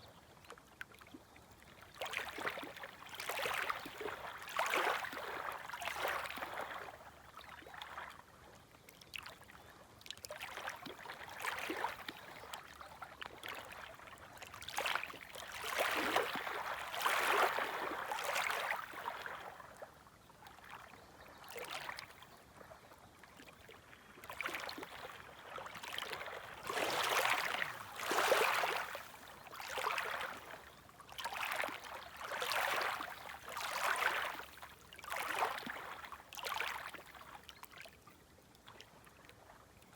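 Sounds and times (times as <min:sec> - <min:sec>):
gentle waves lapping at shore: 0:00.0 - 0:39.9.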